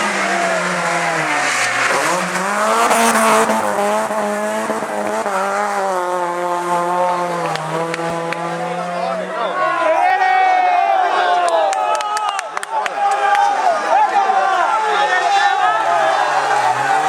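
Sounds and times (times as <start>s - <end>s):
rally car engine revving: 0.0s - 9.6s, 14.9s - 17.0s.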